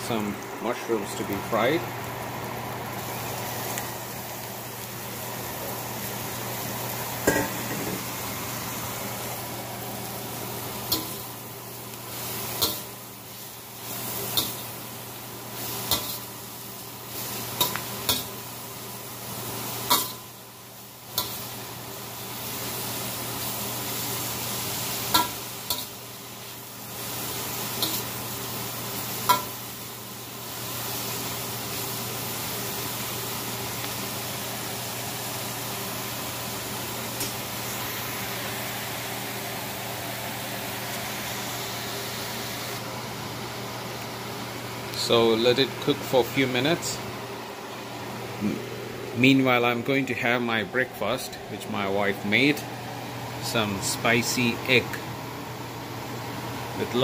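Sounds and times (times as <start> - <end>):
mushrooms sizzling in hot oil: 0.0 - 57.0
spatula clinking and scraping wok: 15.7 - 16.3.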